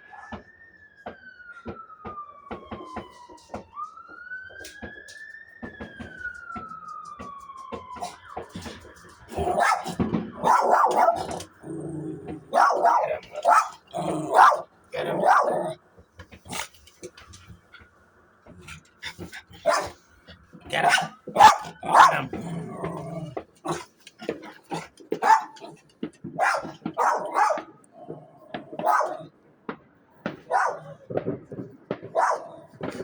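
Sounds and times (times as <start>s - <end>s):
dog barking excitedly: 8.0s - 15.8s, 16.4s - 16.8s, 18.6s - 29.3s, 30.3s - 31.1s, 32.0s - 33.0s
dog growling: 8.6s - 15.8s, 16.4s - 17.5s, 18.5s - 25.8s, 26.6s - 29.3s.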